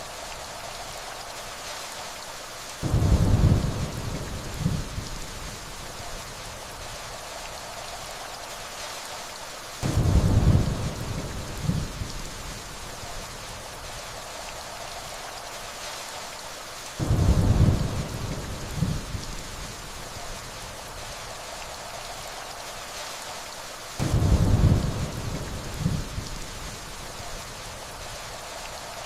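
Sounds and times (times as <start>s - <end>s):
steady rainfall: 0.0s - 29.0s
distant thunder rumbles: 2.8s - 5.6s, 9.8s - 12.2s, 17.0s - 19.7s, 24.0s - 26.8s.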